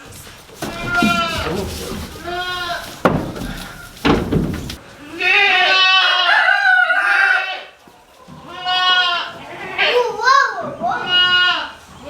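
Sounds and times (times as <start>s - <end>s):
sharp knocks: 0.6s - 4.8s
goat bleating: 0.6s - 6.4s, 8.4s - 10.0s, 10.9s - 11.8s.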